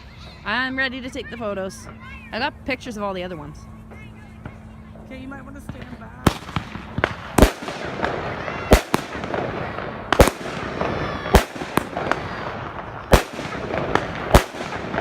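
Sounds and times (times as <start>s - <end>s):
firework pops and crackling: 5.6s - 15.0s
loud firework bangs: 5.7s - 15.0s.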